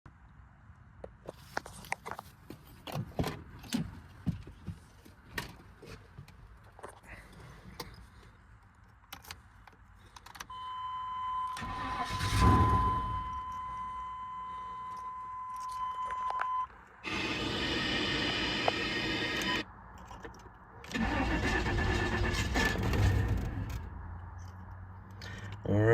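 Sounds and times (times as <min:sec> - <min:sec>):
car engine starting and running: 0:07.7 - 0:25.9.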